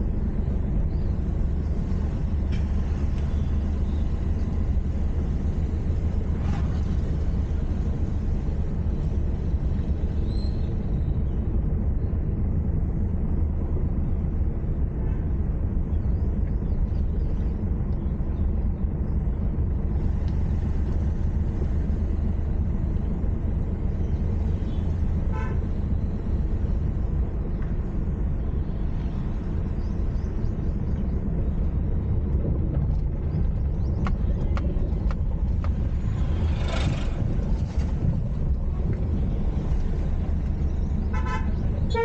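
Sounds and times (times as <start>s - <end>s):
car engine and road noise: 0.0s - 42.0s
vehicle horn toot: 25.3s - 25.7s, 41.1s - 42.0s.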